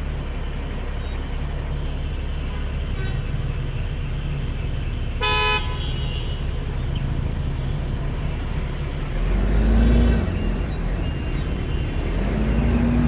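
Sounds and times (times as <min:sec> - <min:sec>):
city street traffic: 0:00.0 - 0:13.0
car horn toot: 0:05.2 - 0:06.6.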